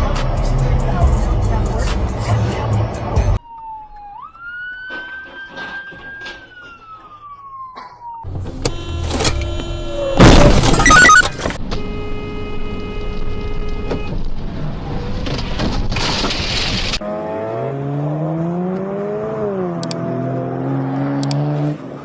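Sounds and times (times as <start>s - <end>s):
road and wind rumble: 0.0s - 22.0s
car engine revving: 17.0s - 21.9s.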